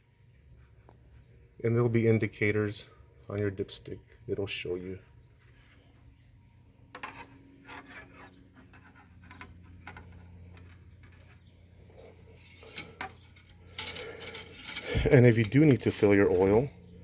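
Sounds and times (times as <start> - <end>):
scratching and rubbing handling noise: 5.0 - 17.0
steady low hum: 8.3 - 17.0
loud scrape: 12.0 - 16.6.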